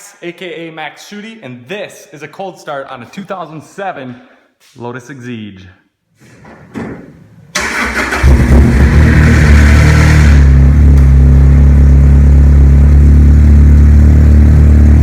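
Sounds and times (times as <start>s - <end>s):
car engine starting and idling: 7.5s - 15.0s.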